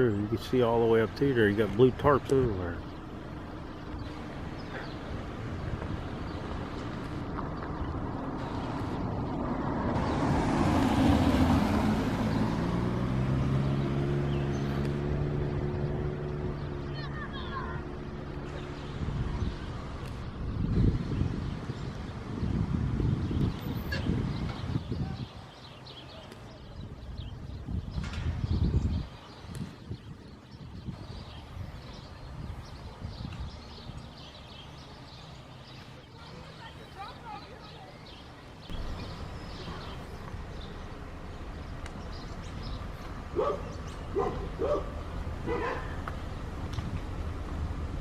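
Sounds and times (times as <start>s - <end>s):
car engine hum: 0.0s - 20.4s, 37.0s - 48.0s
road noise rush: 0.0s - 48.0s
bird chirps: 23.4s - 46.2s.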